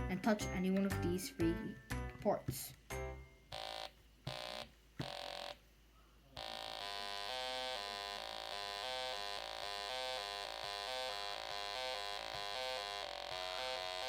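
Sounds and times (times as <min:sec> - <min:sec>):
buzzy electronic tone: 0:06.4 - 0:14.0.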